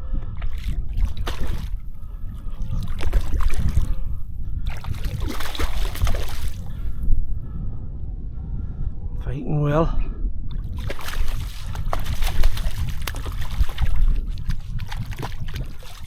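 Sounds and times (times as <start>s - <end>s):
wind rumble on microphone: 0.0s - 16.0s
water splashing: 0.4s - 1.8s, 4.7s - 6.7s, 10.6s - 16.0s.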